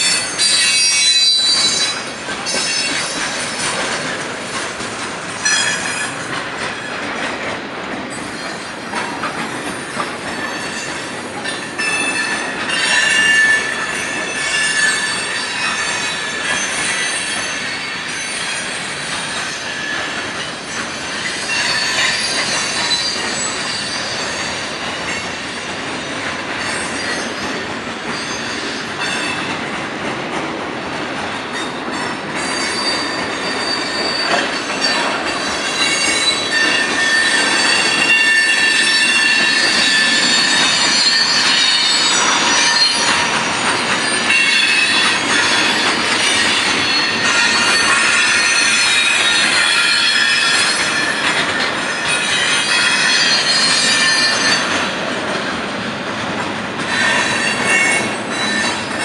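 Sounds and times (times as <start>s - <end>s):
train wheels rattling on rail: 0.0s - 59.0s
high-pitched wheel squeal: 32.4s - 51.3s, 51.9s - 54.8s, 56.9s - 59.0s.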